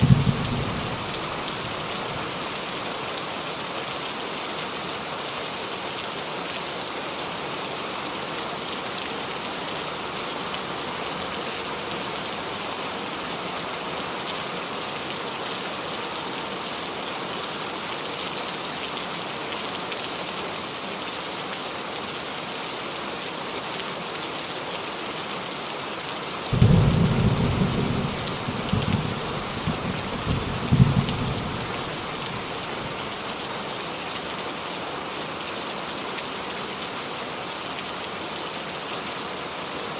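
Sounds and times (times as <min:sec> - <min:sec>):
thunder rumbling: 0:00.0 - 0:01.1, 0:26.6 - 0:32.1
rain on a roof: 0:00.0 - 0:39.9.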